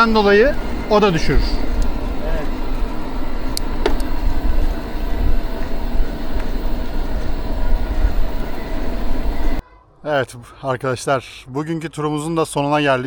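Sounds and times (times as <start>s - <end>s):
bike tyres rolling on rough track: 0.0s - 9.6s
wind buffeting microphone: 0.0s - 9.6s.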